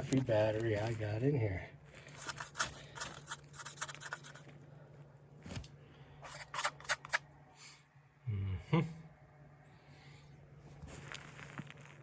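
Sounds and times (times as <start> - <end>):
faint low hum: 0.0 - 12.0
tool clicks and scrapes: 2.1 - 4.4, 6.2 - 7.2.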